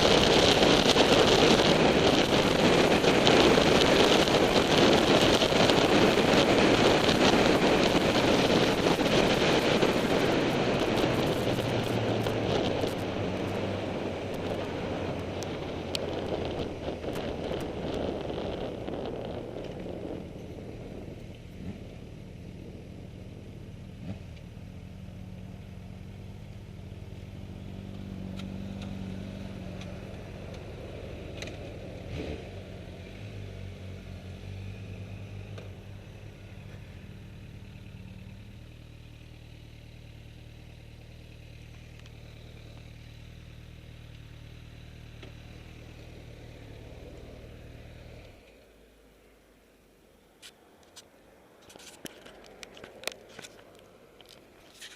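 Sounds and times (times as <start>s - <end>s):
motorcycle engine hum: 0.0s - 54.9s
wind and road noise: 0.0s - 54.9s.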